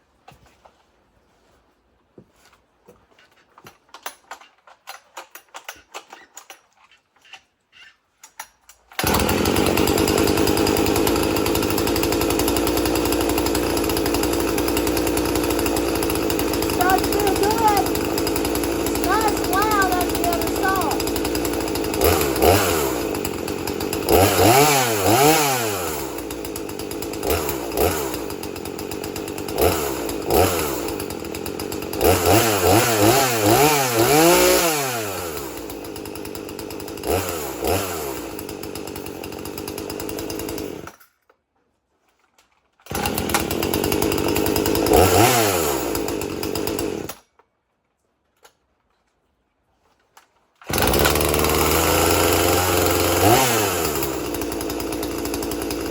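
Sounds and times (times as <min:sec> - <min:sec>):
chainsaw idling and revving: 0:09.0 - 0:41.1, 0:42.8 - 0:47.3, 0:50.6 - 0:55.9.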